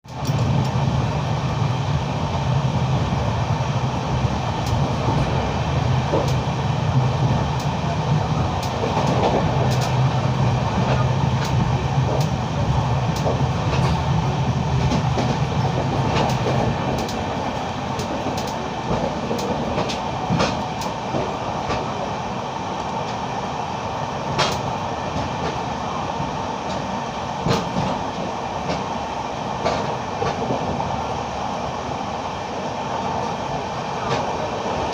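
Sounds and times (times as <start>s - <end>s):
train rumbling: 0.0s - 34.9s
wheels clicking on track: 7.5s - 14.2s.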